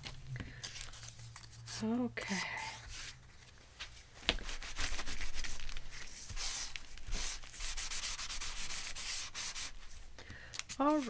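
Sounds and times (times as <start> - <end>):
paper being scraped: 4.4 - 9.8.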